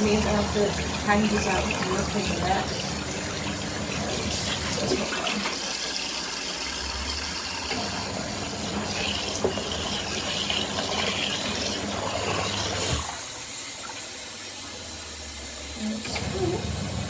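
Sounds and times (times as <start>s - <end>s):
water churning in washing machine: 0.0s - 17.0s
motor humming: 15.1s - 17.0s.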